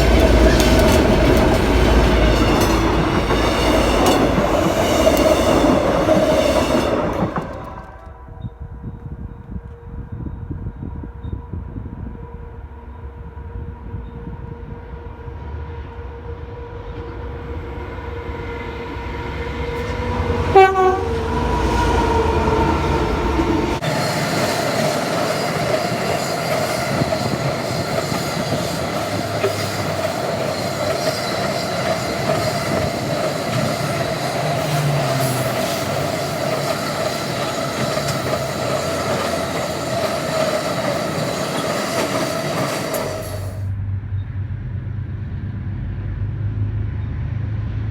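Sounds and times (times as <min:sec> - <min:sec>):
wheels clacking on rail joints: 0:00.0 - 0:08.1, 0:19.7 - 0:43.6
freight wagons rumbling: 0:00.0 - 0:08.4, 0:18.6 - 0:44.0
train horn: 0:11.8 - 0:43.6.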